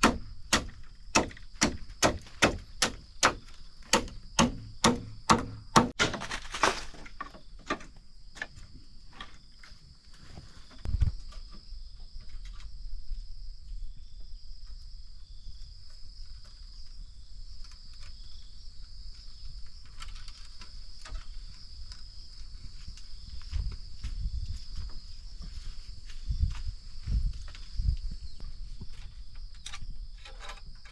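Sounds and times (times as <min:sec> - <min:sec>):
chopping strikes: 0:00.0 - 0:06.4
dull thud: 0:00.0 - 0:06.8
forest insects droning: 0:00.0 - 0:30.9.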